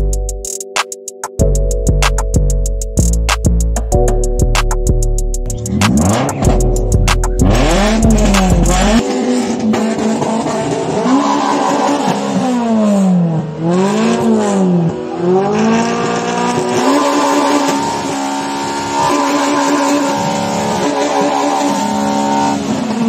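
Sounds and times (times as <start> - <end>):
car engine free-revving: 5.5 - 23.0.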